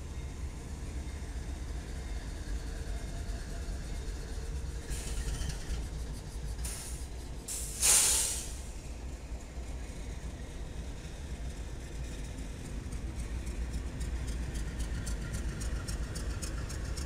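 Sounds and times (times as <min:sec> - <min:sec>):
train rumbling on tracks: 0:00.0 - 0:17.0
loud hiss: 0:07.5 - 0:08.6.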